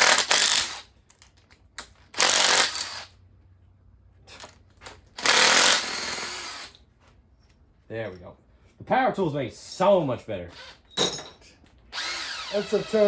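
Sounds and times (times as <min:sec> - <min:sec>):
power tool spinning bolts: 0:00.0 - 0:01.2, 0:01.8 - 0:03.1, 0:05.2 - 0:06.8, 0:11.9 - 0:13.0.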